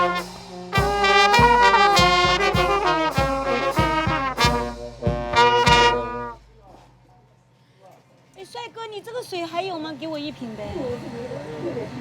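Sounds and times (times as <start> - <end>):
brass melody in short notes: 0.0 - 6.7
steady drum beat: 0.0 - 7.2.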